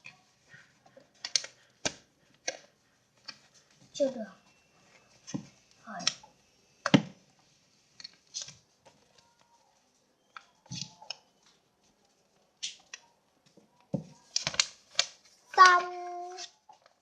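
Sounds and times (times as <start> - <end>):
paper crinkling and rustling: 7.8 - 17.0.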